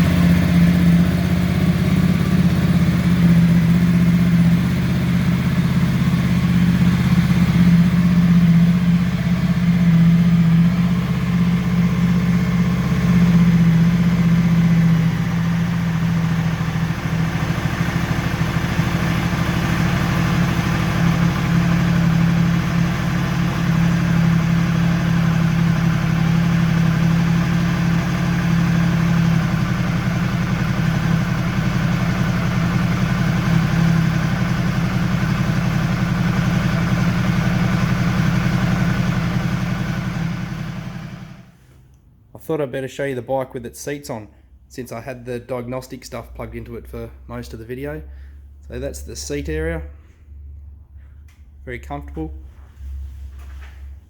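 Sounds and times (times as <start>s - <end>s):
motorcycle engine idling: 0.0s - 41.6s.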